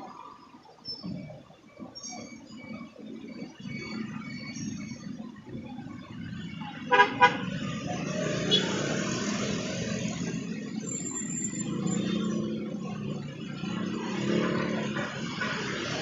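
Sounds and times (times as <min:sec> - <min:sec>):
passing traffic: 0:00.0 - 0:16.0
vehicle horn tooting: 0:06.9 - 0:07.5.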